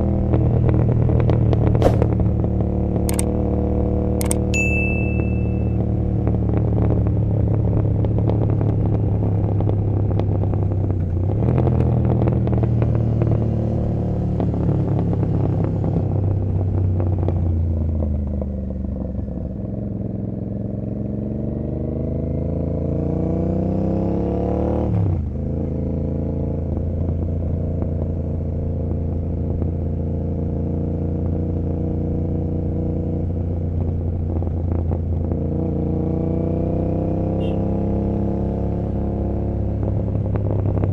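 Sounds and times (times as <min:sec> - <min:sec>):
motorcycle engine running: 0:00.0 - 0:11.2, 0:26.6 - 0:38.8.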